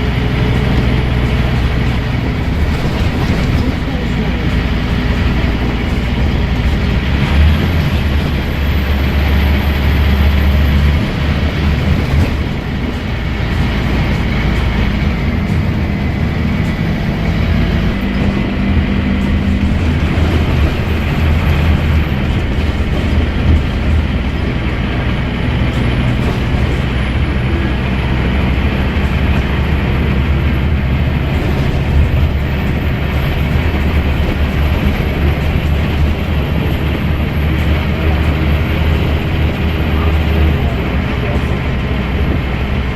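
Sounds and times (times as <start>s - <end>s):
bus diesel engine working hard: 0.0s - 42.9s.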